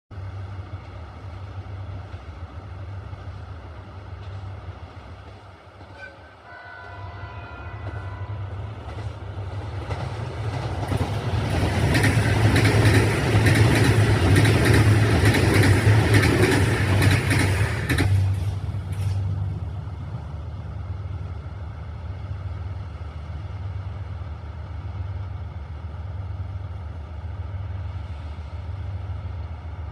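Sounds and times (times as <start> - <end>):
train horn: 5.8 - 8.8
train wheels clacking on rails: 7.8 - 19.4.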